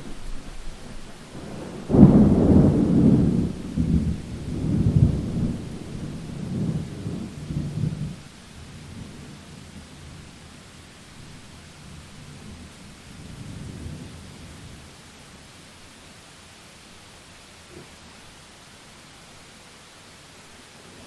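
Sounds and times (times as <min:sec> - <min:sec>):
rolling thunder: 0:00.0 - 0:10.4, 0:11.2 - 0:15.0
falling rain: 0:00.0 - 0:21.0.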